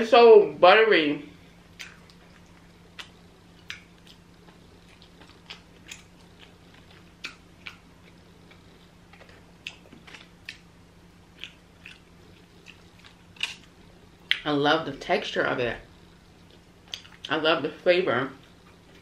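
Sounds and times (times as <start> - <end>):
faint steady hum: 0.0 - 19.0
wet chewing clicks: 1.8 - 10.7, 11.3 - 14.5, 16.4 - 17.3.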